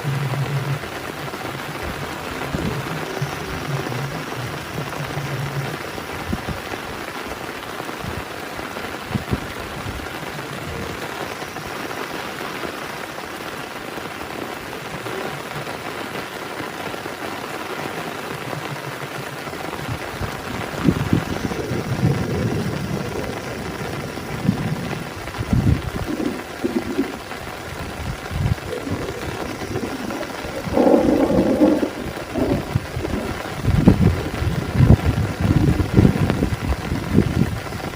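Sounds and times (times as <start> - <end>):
heavy rain falling: 0.0 - 37.9
low thumps and rumbles: 19.9 - 37.8.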